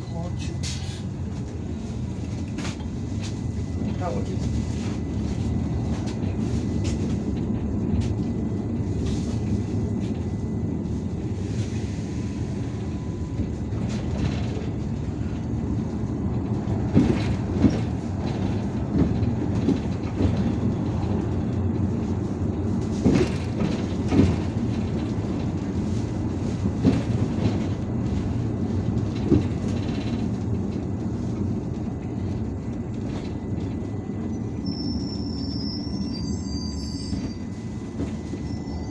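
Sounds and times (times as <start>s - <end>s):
bus engine and road rumble: 0.0s - 38.9s
bus body knocks and rattles: 13.4s - 34.5s.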